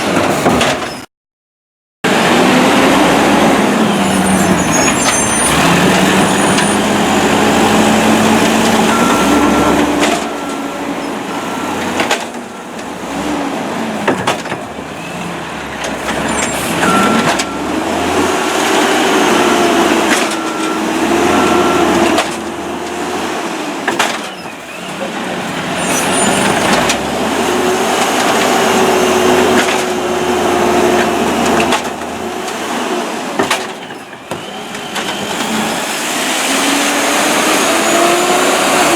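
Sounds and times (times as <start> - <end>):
garbage truck engine revving: 2.1 - 38.9
short beeps: 4.1 - 6.9, 8.8 - 13.0, 16.2 - 23.4.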